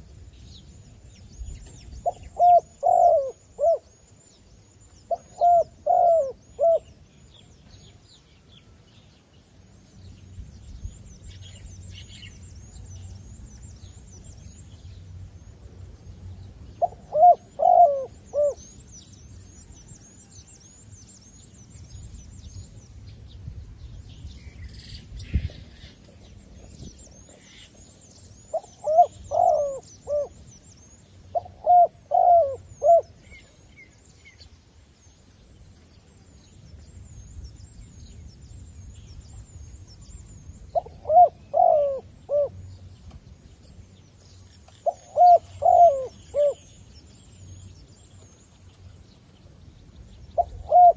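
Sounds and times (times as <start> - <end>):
dove cooing: 2.0 - 3.9, 5.1 - 6.9, 16.8 - 18.6, 28.5 - 30.4, 31.3 - 33.2, 40.7 - 42.6, 44.8 - 46.6, 50.4 - 50.9.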